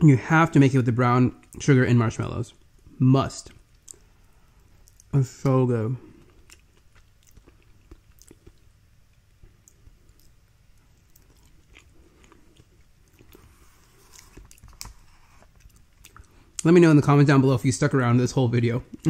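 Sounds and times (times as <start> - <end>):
person chewing: 3.5 - 5.2, 6.0 - 16.7.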